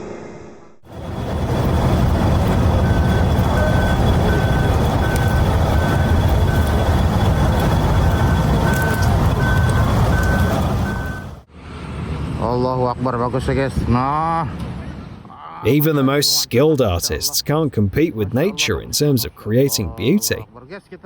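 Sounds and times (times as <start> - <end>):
heavy vehicle engine rumbling: 0.9 - 12.4
reversing alarm beeping: 1.0 - 11.4.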